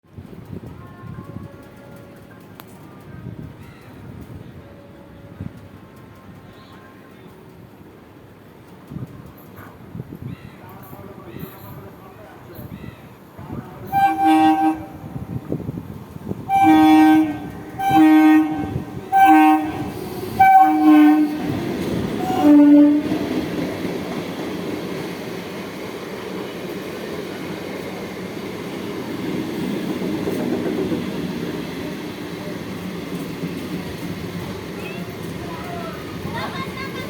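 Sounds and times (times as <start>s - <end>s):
train rumbling and clattering: 0.0s - 37.0s
train horn blasts: 13.8s - 15.6s, 16.4s - 23.4s.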